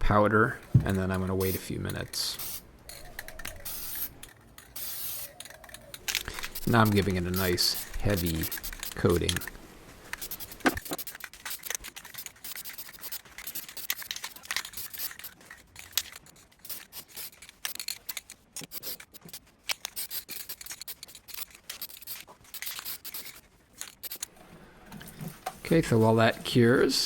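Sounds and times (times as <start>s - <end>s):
parts being handled: 0.5s - 26.8s
aerosol can spraying: 2.3s - 2.6s, 3.5s - 4.1s, 4.8s - 5.4s, 6.1s - 14.1s, 14.7s - 15.3s, 18.7s - 23.4s, 24.0s - 24.3s.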